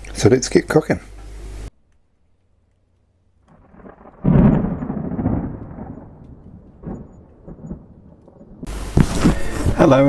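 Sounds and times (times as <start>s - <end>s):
deep rumble: 3.5s - 9.9s
loud thunder-like boom: 3.6s - 8.7s.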